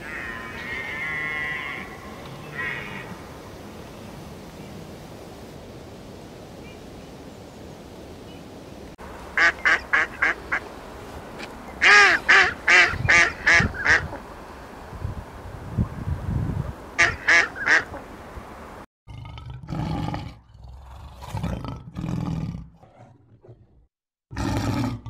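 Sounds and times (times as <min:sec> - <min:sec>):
waterfowl calling: 0:00.0 - 0:03.2, 0:09.4 - 0:10.7, 0:11.8 - 0:14.2, 0:17.0 - 0:18.0.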